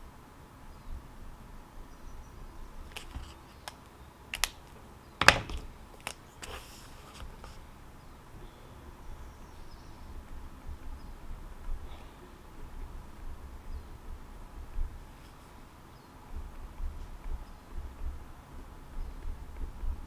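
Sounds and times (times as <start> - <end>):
small objects clicking on a desk: 2.9 - 7.6.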